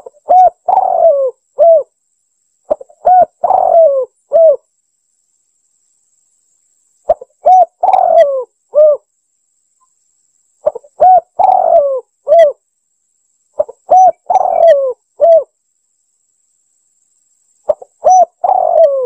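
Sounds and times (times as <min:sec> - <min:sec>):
dove cooing: 0:00.0 - 0:01.9, 0:02.7 - 0:04.6, 0:07.1 - 0:09.1, 0:10.6 - 0:12.6, 0:13.6 - 0:15.5, 0:17.7 - 0:19.0.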